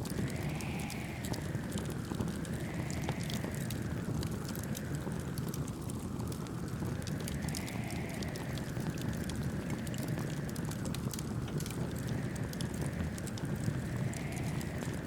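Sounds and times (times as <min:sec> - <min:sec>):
soft wind whoosh: 0:00.0 - 0:04.0
campfire crackling: 0:00.0 - 0:15.0.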